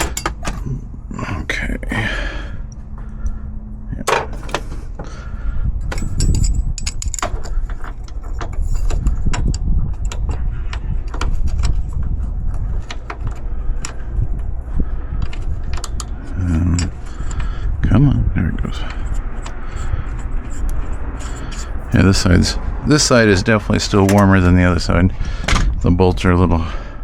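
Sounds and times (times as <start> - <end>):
steady low rumble: 0.0 - 27.0
metallic clicks of bolts: 5.9 - 10.4.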